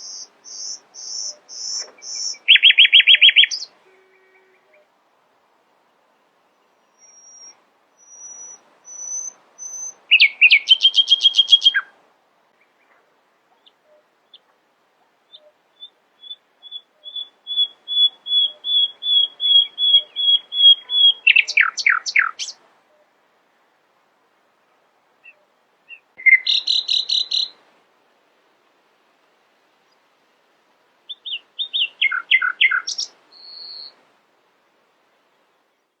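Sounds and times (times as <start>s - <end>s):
nightingale singing: 0.0s - 5.0s, 6.4s - 12.0s, 12.6s - 14.5s, 15.2s - 23.2s, 25.2s - 27.6s, 31.0s - 34.0s.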